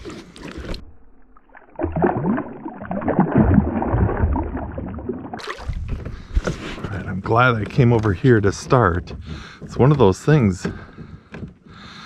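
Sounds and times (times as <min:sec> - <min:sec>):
water sloshing against hull: 0:00.0 - 0:12.0.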